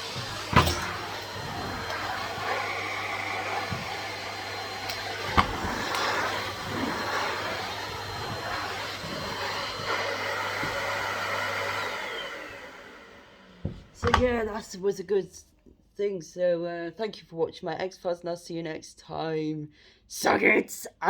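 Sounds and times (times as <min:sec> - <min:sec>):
vacuum cleaner running: 0:00.0 - 0:14.6.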